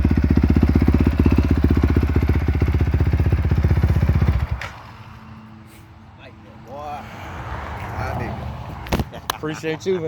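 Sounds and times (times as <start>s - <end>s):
motorcycle engine idling: 0.0s - 4.8s.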